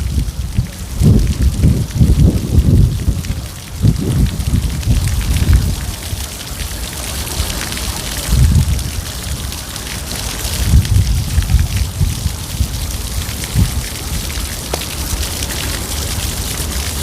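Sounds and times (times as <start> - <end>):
rain falling: 0.0 - 17.0
deep low rumbles: 0.1 - 5.9.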